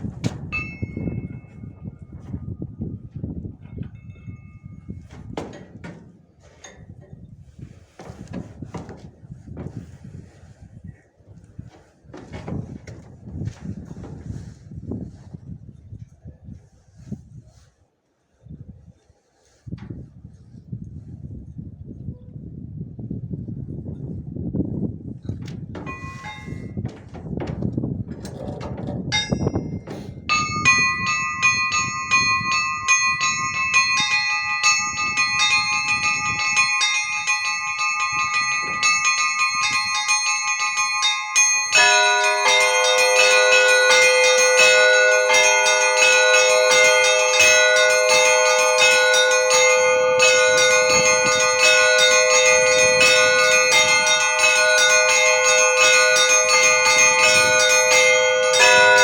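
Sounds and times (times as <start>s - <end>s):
wind rumble on microphone: 0.0s - 59.0s
large deep bells ringing: 0.4s - 2.2s, 25.7s - 59.0s
small high-pitched bells ringing: 0.6s - 2.2s, 29.2s - 59.0s.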